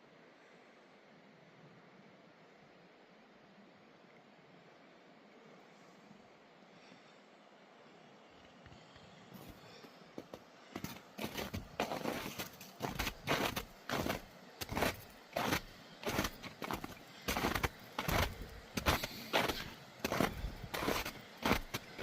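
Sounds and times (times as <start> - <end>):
boots crunching on snow: 10.8 - 22.0.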